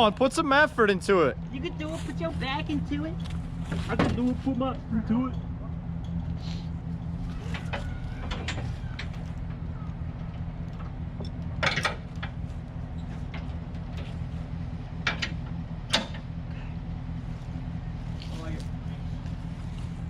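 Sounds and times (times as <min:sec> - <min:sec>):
vehicle engine idling: 0:00.0 - 0:20.0
sharp clanks and knocks: 0:07.3 - 0:09.6, 0:10.2 - 0:16.4.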